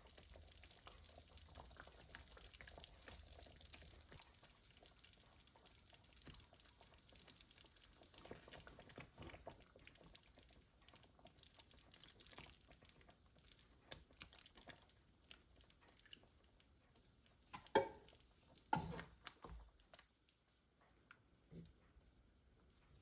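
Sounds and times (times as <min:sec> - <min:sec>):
kitchenware clicks and scrapes: 0:17.5 - 0:18.1.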